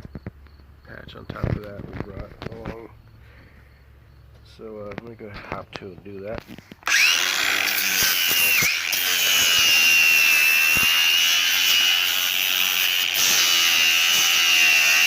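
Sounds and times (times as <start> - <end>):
power grinder whining: 6.6 - 15.0.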